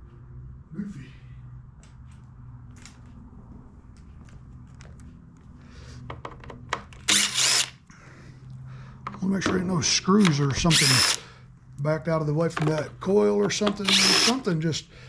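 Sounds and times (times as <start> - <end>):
steady low hum: 0.0 - 6.3
cordless drill spinning: 7.0 - 7.8, 10.2 - 11.2, 13.5 - 14.5.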